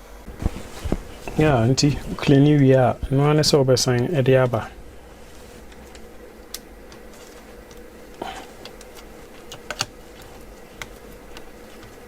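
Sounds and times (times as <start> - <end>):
faint electrical hum: 0.0 - 12.0
clicks of laptop parts and tools: 8.6 - 12.0.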